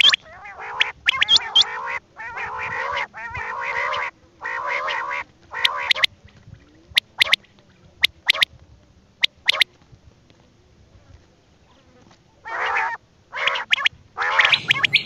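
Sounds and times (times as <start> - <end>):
nasal quacking bird calls: 0.0 - 6.1, 7.0 - 7.4, 8.0 - 8.5, 9.2 - 9.6, 12.4 - 15.0
sharp high bird chirps: 14.4 - 15.0.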